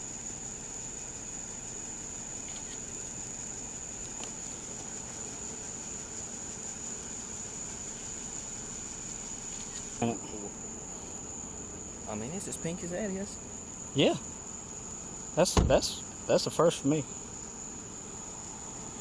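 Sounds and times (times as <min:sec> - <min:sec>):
background hiss: 0:00.0 - 0:19.0
insects trilling: 0:00.0 - 0:19.0.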